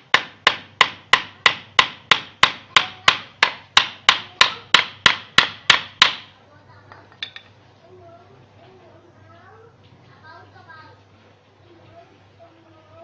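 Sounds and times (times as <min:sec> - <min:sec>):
hammer driving nail into wood: 0:00.0 - 0:06.3.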